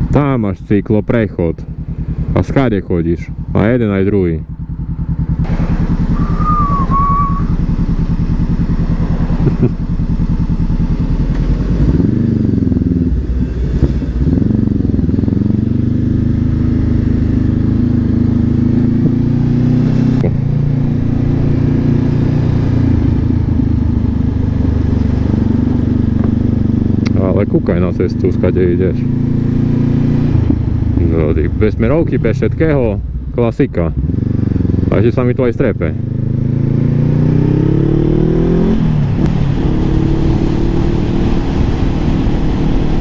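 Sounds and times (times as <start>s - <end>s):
motorcycle engine idling and pulling away: 1.2s - 43.0s
short high chirp: 6.1s - 7.6s.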